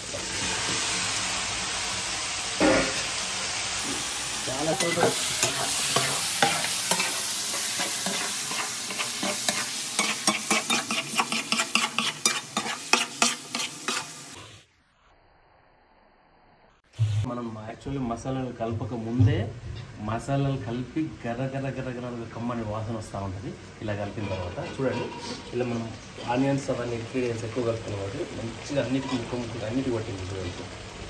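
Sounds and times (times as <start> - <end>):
chicken sizzling in a pot: 0.0 - 14.7, 21.4 - 31.0
metal clank: 2.6 - 3.0
metal spoon scraping pot: 4.8 - 14.2, 24.2 - 25.8.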